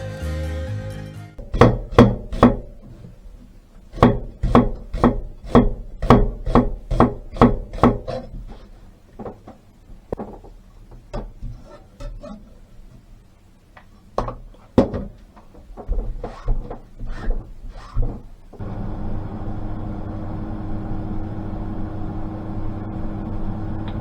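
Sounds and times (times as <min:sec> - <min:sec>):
knife chopping on wooden board: 0:01.4 - 0:02.9, 0:04.0 - 0:08.3.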